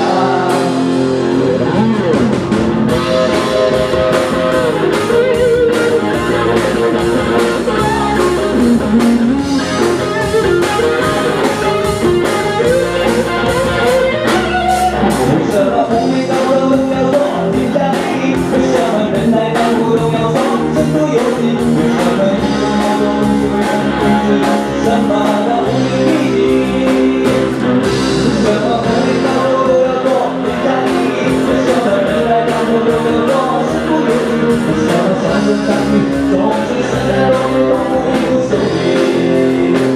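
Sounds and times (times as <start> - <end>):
guitars: 0.0 - 39.9
live pop-rock band: 0.0 - 39.9
person singing: 0.0 - 39.9
drum beat: 2.0 - 27.4.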